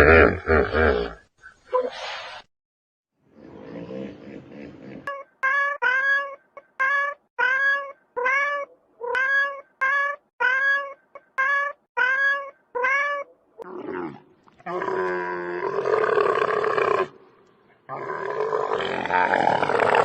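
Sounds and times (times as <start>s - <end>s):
cat meowing: 5.4s - 13.3s.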